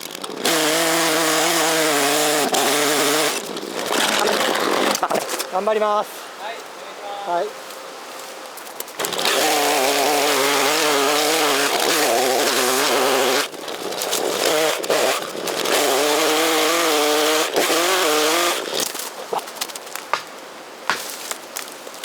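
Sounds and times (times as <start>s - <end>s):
chainsaw cutting at high revs: 0.0s - 5.4s, 9.0s - 19.1s.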